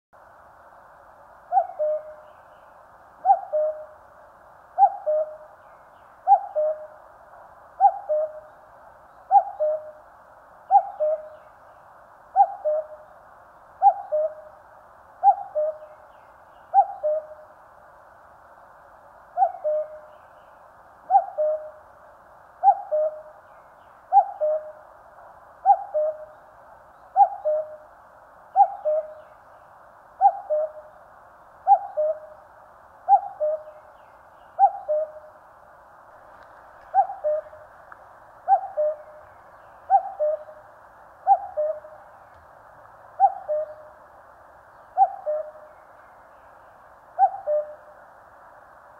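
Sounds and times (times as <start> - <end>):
cuckoo calling: 1.5 - 2.4, 3.2 - 4.0, 4.8 - 5.5, 6.2 - 7.0, 7.8 - 8.5, 9.2 - 10.0, 10.7 - 11.5, 12.3 - 13.1, 13.8 - 14.6, 15.2 - 16.0, 16.7 - 17.4, 19.4 - 20.2, 21.0 - 21.8, 22.6 - 23.4, 24.1 - 24.8, 25.6 - 26.4, 27.1 - 27.9, 28.6 - 29.3, 30.2 - 30.9, 31.6 - 32.4, 33.1 - 33.9, 34.5 - 35.4, 36.8 - 37.7, 38.4 - 40.6, 41.2 - 42.5, 43.2 - 44.0, 44.9 - 45.8, 47.2 - 47.9.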